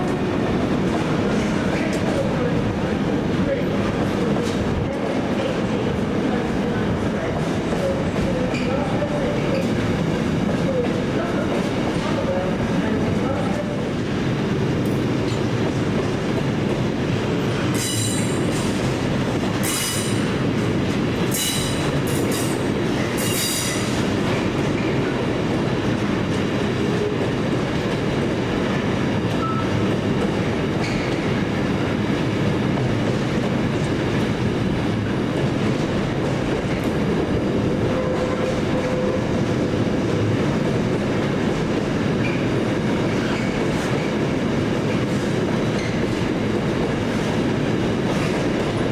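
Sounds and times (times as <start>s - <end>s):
train rumbling past: 0.0s - 48.9s
train wheels squealing: 17.8s - 18.4s, 19.6s - 20.2s, 21.3s - 22.5s, 23.2s - 23.9s, 30.8s - 31.2s, 45.8s - 46.1s.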